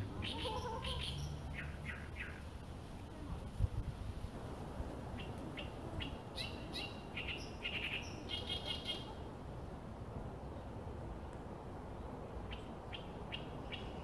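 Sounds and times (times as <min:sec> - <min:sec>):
small songbirds chirping: 0:00.0 - 0:02.6, 0:05.2 - 0:09.2, 0:11.9 - 0:14.0.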